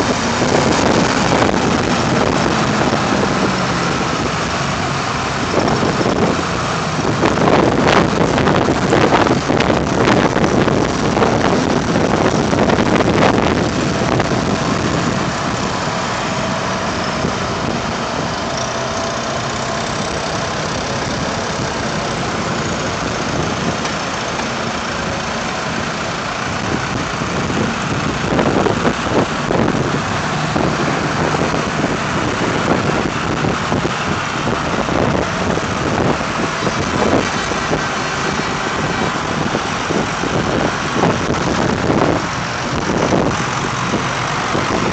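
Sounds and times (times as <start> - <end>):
tractor engines driving past: 0.0 - 44.9.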